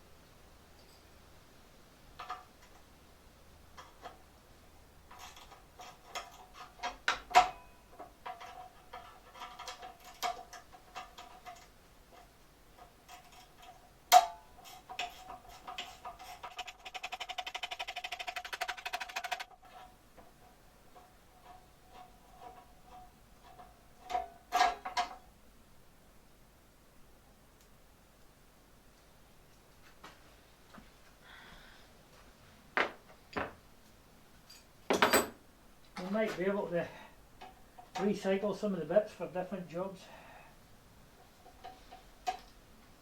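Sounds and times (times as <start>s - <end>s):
metal tools clinking and knocking: 5.1s - 11.8s, 20.9s - 25.2s, 34.4s - 35.4s
fast ticking rattle: 16.5s - 19.6s.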